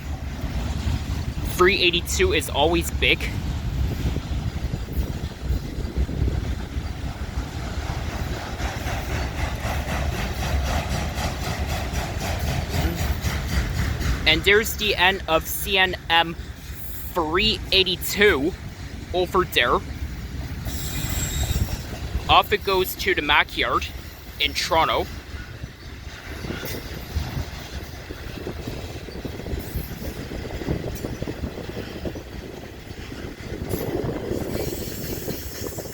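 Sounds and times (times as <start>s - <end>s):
clatter of train wheels: 0.0s - 35.9s
freight train rumbling past: 0.0s - 35.9s.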